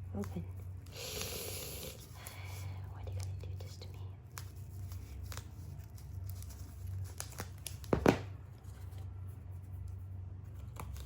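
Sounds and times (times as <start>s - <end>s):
steady low hum: 0.0s - 11.0s
packaging crinkling and tearing: 4.7s - 8.3s.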